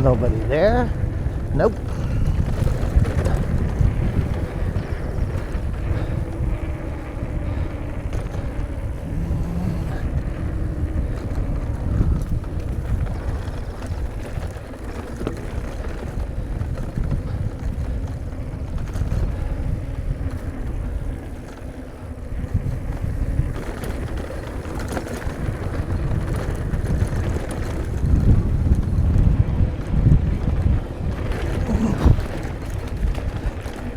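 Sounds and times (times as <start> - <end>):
bike rattling and clicking: 0.0 - 33.9
bike tyres rumbling on dirt: 0.0 - 33.9
wind buffeting microphone: 0.0 - 33.9.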